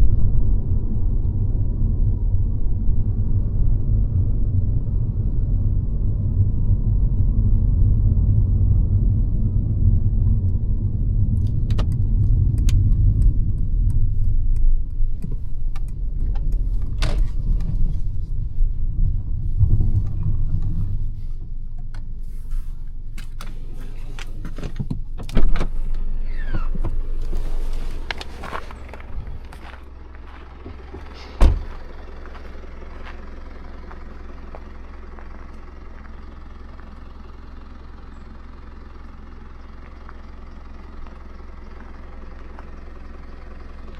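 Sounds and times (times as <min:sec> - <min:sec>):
car road and engine rumble: 0:00.0 - 0:43.9
sharp thump: 0:31.4 - 0:31.8.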